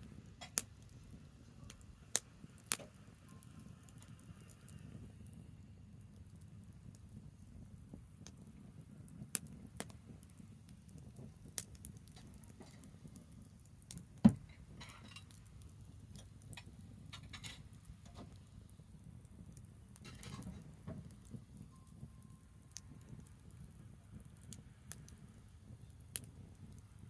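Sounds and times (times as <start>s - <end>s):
low background noise: 0.0s - 27.0s
wood fire crackling and popping: 0.0s - 27.0s.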